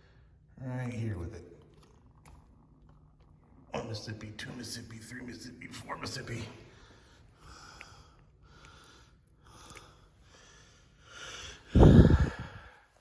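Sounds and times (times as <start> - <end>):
person breathing heavily: 6.7 - 13.0.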